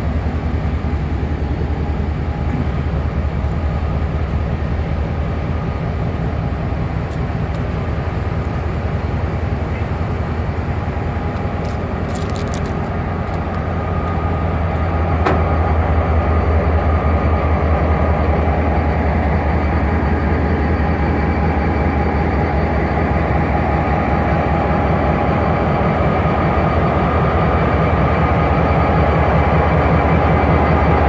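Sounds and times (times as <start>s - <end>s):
train wheels rumbling on track: 0.0s - 31.0s.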